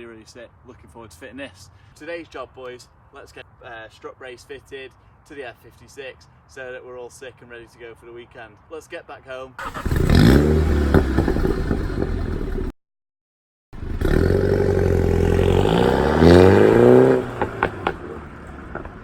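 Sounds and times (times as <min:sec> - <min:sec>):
car engine accelerating: 0:09.6 - 0:12.7, 0:13.8 - 0:19.0.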